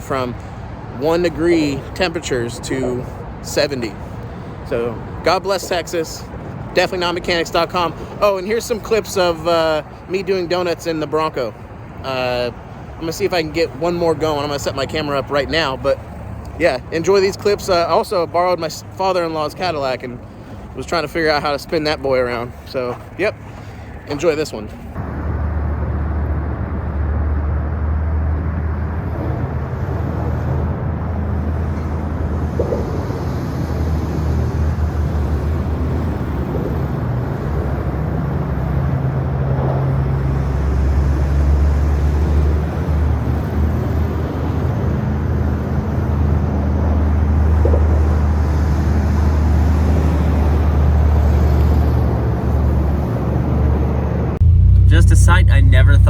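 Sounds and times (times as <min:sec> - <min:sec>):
car engine droning under load: 0:24.8 - 0:56.0.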